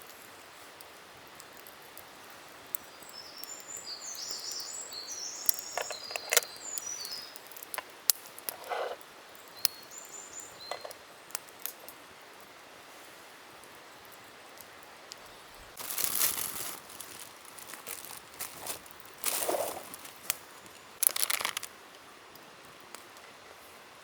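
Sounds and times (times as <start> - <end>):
songbird chirping and warbling: 3.0 - 7.5
brief rustle: 21.0 - 21.7
sharp clicks: 21.0 - 21.7.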